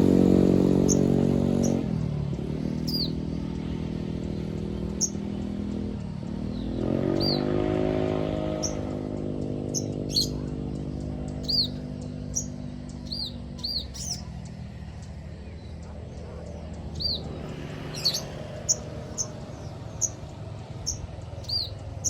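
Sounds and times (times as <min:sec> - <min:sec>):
vehicle engine: 0:00.0 - 0:22.0
songbird chirps and whistles: 0:02.7 - 0:15.8.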